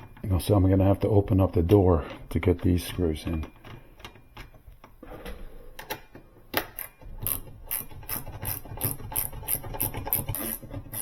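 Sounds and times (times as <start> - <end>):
hand ratchet clicking: 6.6 - 11.0.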